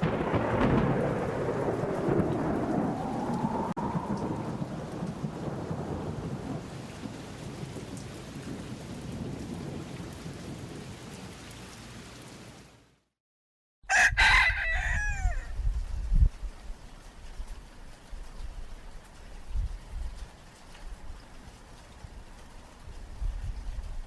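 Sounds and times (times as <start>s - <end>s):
thunder rumbling: 0.0s - 11.0s
rain: 0.0s - 13.1s, 13.9s - 24.0s.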